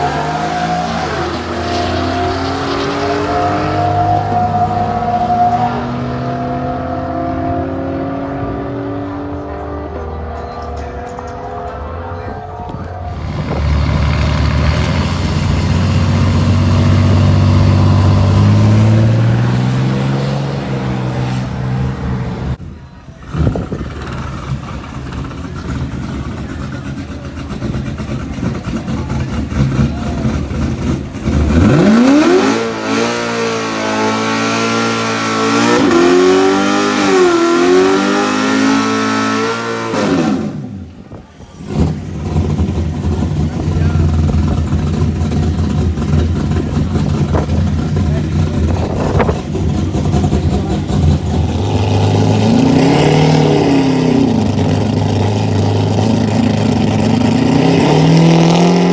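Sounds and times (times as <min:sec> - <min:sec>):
truck engines revving at full throttle: 0:00.0 - 0:58.9.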